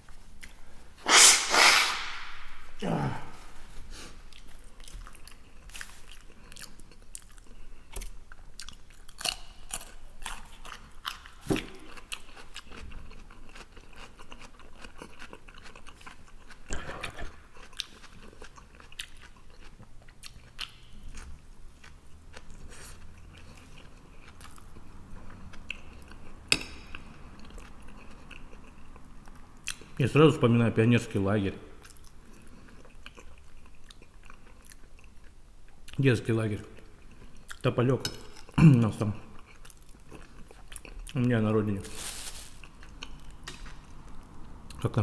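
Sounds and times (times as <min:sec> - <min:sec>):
mouth chewing wet smacking: 0:04.3 - 0:30.0, 0:31.8 - 0:36.0.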